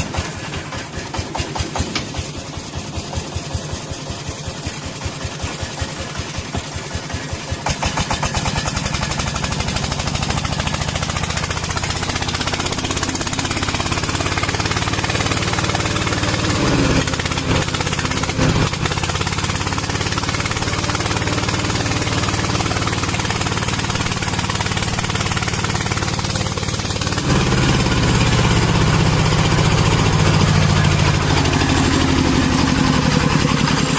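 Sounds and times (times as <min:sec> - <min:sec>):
diesel engine chugging: 0:00.0 - 0:33.9.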